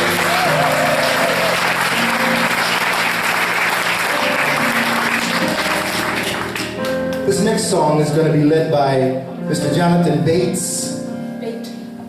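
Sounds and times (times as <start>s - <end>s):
audience applauding: 0.0s - 7.3s
soft sustained piano chords: 0.0s - 12.0s.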